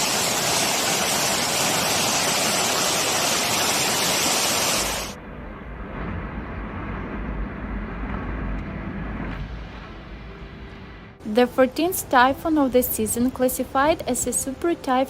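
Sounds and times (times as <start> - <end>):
storm wind and rain: 0.0 - 11.2
deep rumble: 5.1 - 11.3.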